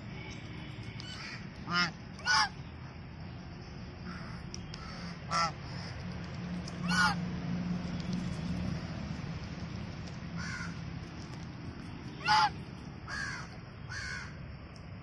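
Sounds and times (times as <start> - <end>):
loud bird calls: 4.0 - 6.0, 12.1 - 14.4.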